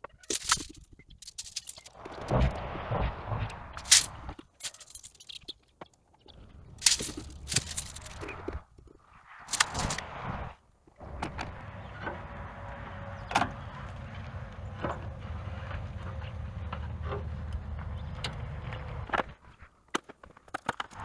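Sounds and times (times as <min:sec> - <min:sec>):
clicks knocks and scrapes on steel: 0:00.2 - 0:02.4, 0:09.5 - 0:10.0.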